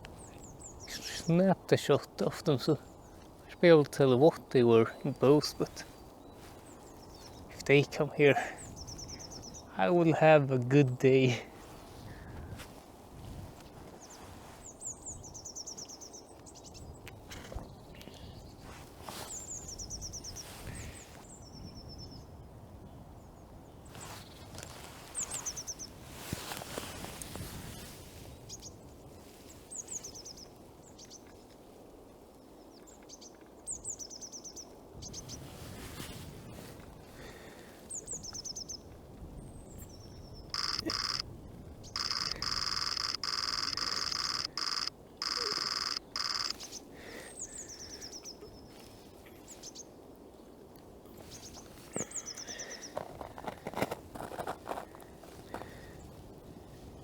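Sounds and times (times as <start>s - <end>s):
steady outdoor hiss: 0.0s - 21.6s, 23.3s - 53.0s
small songbird calling: 39.6s - 41.2s, 41.8s - 48.8s
loud high-pitched buzz: 42.0s - 46.6s.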